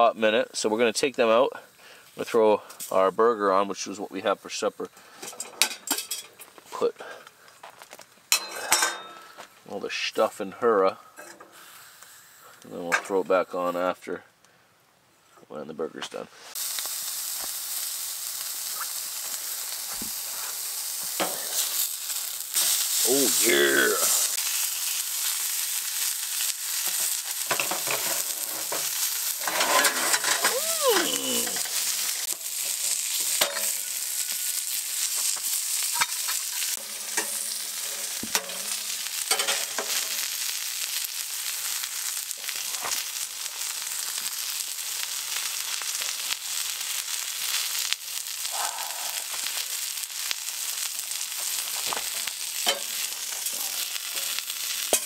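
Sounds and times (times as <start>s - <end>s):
patty sizzling in a pan: 0.6s - 13.9s, 16.1s - 55.0s.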